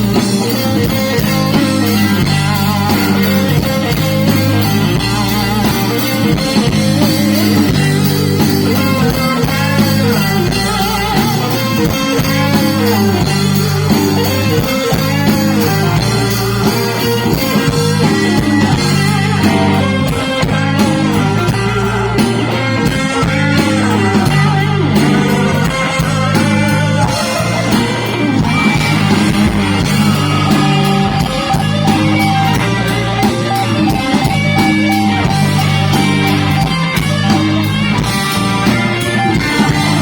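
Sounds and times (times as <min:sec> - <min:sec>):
electric guitar solo: 0:00.0 - 0:40.0
live rock band playing: 0:00.0 - 0:40.0.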